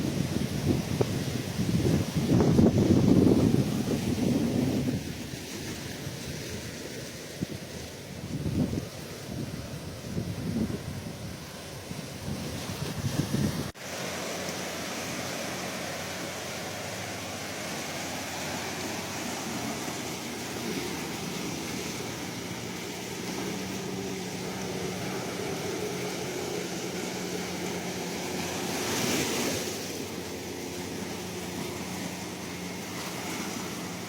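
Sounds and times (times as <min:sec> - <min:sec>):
sea waves washing onto shore: 0:00.0 - 0:34.0.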